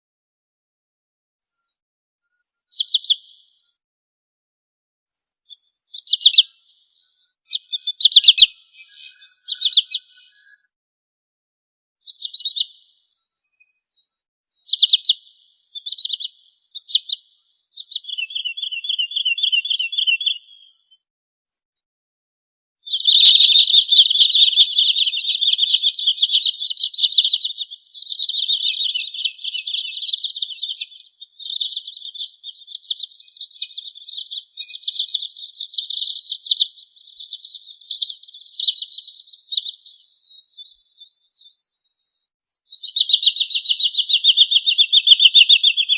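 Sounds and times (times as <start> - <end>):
sandpiper trilled calls: 7.5 - 10.4, 22.9 - 41.6, 42.8 - 45.9.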